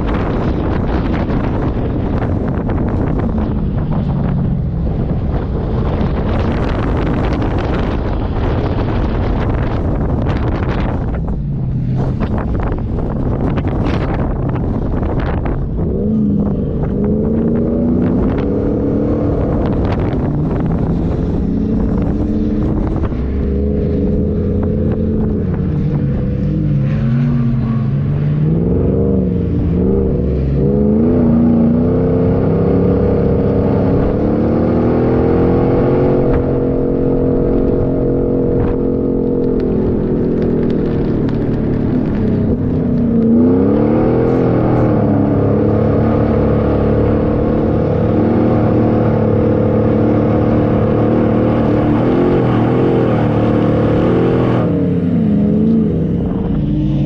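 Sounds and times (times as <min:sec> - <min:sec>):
off-road vehicle engine revving: 0:00.0 - 0:57.0.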